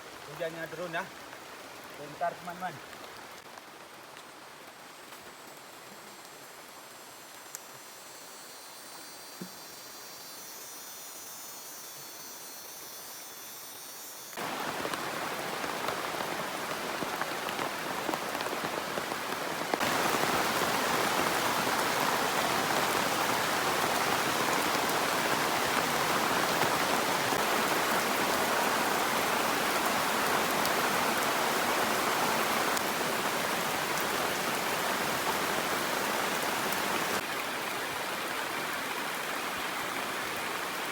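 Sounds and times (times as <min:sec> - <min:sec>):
rain falling: 0:00.0 - 0:10.4, 0:14.3 - 0:40.9
faint thin high tones: 0:07.9 - 0:14.4.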